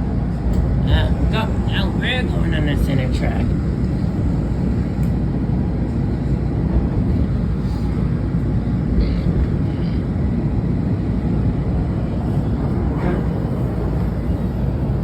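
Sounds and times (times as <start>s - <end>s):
train wheels and motors rumbling: 0.0s - 15.0s.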